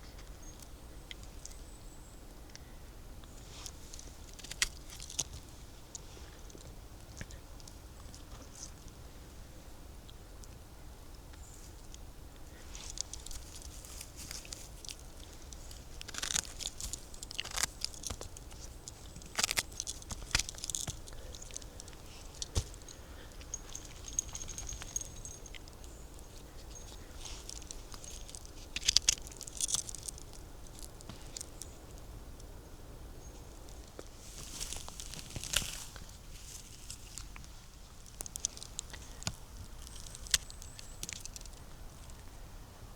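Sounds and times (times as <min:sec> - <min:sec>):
dry leaves and twigs crunching: 0:03.3 - 0:06.8, 0:11.4 - 0:32.2, 0:33.2 - 0:42.3.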